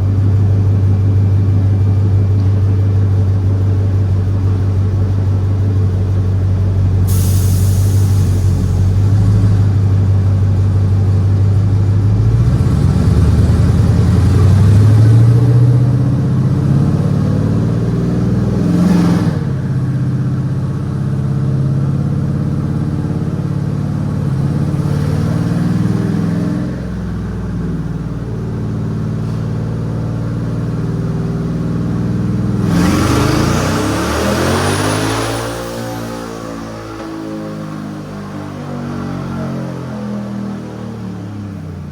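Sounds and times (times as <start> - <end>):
truck engine revving: 7.0 - 28.3, 29.0 - 41.0
rush of noise with high whistle: 7.1 - 9.0.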